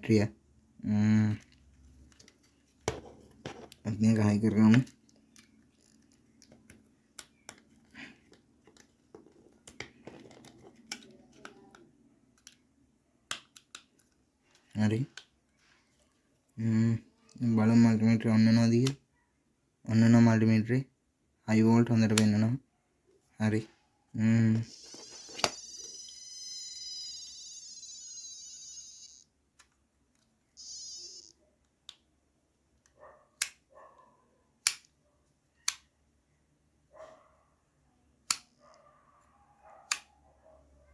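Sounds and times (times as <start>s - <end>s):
multimeter buzzer beeping: 24.7s - 29.3s, 30.6s - 31.4s.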